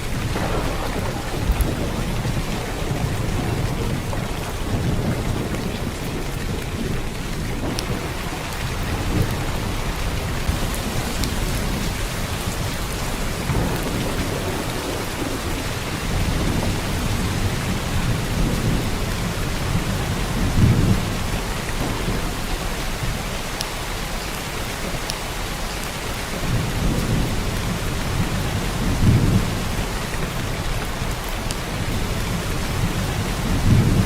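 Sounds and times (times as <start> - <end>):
heavy rain hissing: 0.0 - 34.0.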